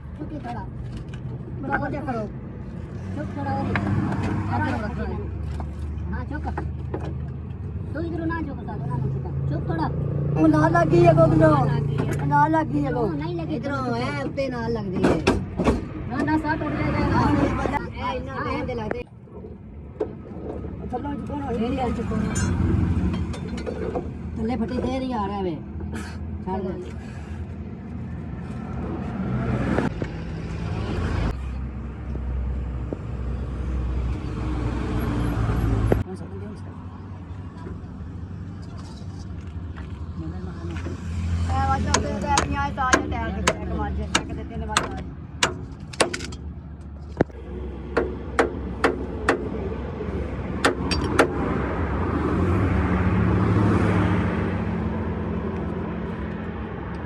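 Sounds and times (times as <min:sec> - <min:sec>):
vehicle engine humming: 0:00.0 - 0:57.0
sharp metallic knocks: 0:41.9 - 0:46.4, 0:47.8 - 0:49.6, 0:50.6 - 0:51.4.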